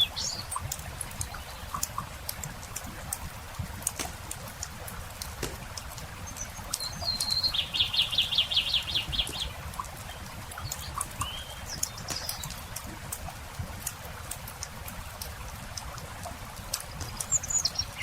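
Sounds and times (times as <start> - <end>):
campfire crackling and popping: 0.0 - 18.0
songbird singing a trill: 6.2 - 9.6, 10.6 - 12.7.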